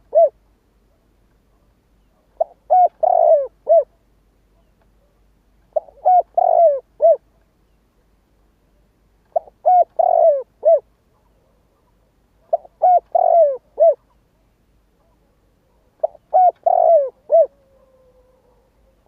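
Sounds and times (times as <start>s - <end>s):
dove cooing: 0.0s - 0.4s, 2.1s - 4.0s, 5.7s - 7.3s, 9.3s - 14.2s, 15.0s - 19.0s.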